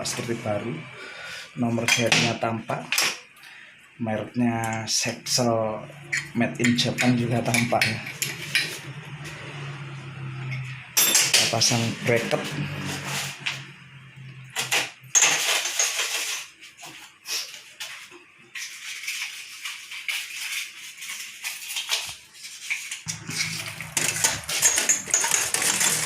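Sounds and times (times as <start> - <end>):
metal tools clinking: 23.1 - 26.0.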